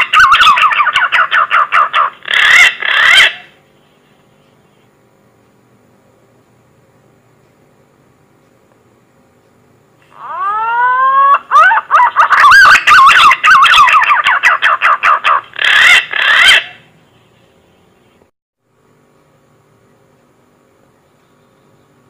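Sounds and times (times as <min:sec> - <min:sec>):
whistled pigeon call: 0:10.2 - 0:14.7.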